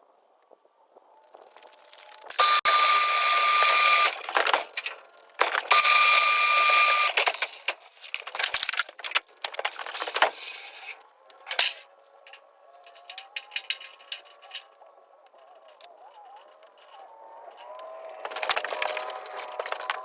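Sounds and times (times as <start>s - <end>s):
power tool whining: 2.1s - 7.4s, 15.3s - 20.0s
clattering knocks and rattles: 7.2s - 20.0s.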